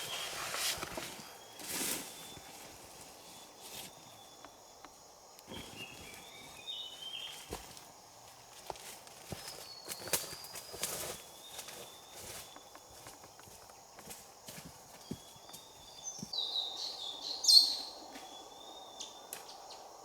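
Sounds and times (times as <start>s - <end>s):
rustling of leaves or brush: 0.0s - 4.4s, 5.5s - 16.0s
faint bird chirps: 0.0s - 7.5s, 9.3s - 13.6s, 15.0s - 19.9s.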